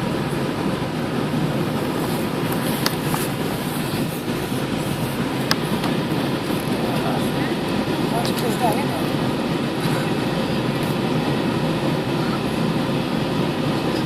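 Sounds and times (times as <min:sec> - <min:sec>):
airliner cabin engine and airflow rush: 0:00.0 - 0:14.0.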